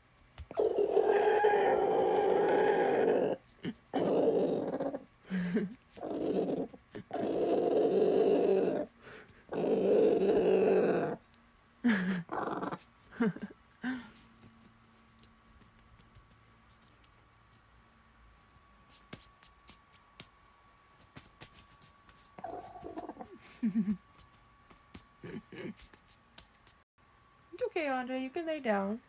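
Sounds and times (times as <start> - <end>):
rooster growling: 0.6 - 5.1, 6.0 - 8.9, 9.5 - 11.2, 12.2 - 12.8.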